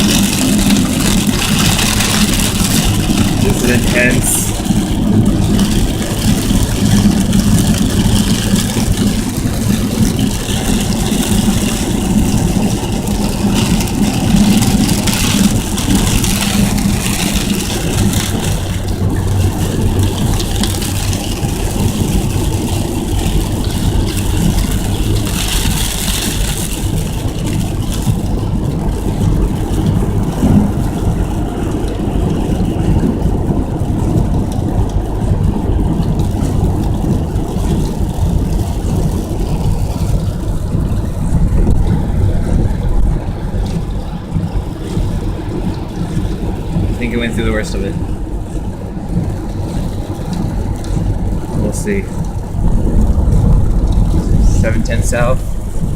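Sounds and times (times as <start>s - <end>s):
rain hitting car: 0.0s - 55.9s
road and engine rumble: 0.0s - 55.9s.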